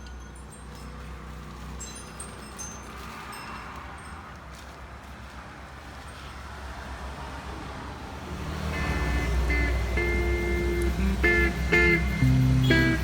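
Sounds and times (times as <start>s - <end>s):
acoustic guitar music: 8.7s - 13.0s.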